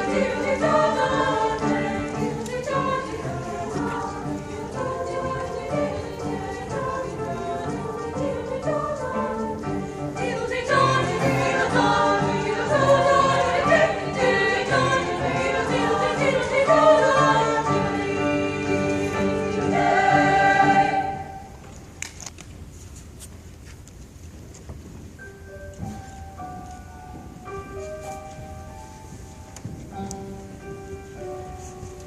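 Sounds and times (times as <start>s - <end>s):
choir singing: 0.0s - 21.5s.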